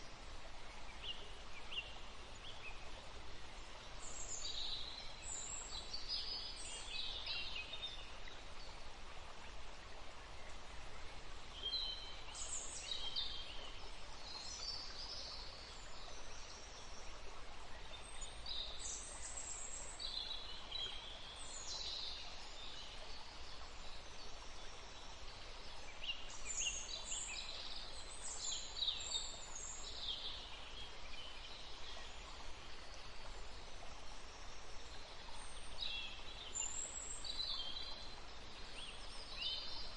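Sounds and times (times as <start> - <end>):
woodland stream running: 0.0 - 39.9.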